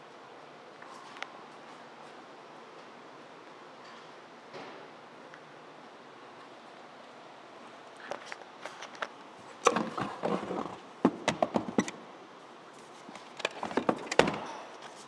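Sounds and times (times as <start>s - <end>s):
objects knocking and clattering: 9.6s - 12.0s, 13.4s - 14.6s.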